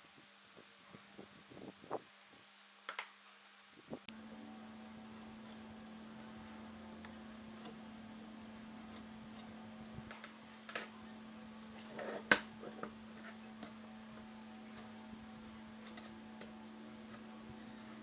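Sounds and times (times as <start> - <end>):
steady low hum: 3.8 - 18.0.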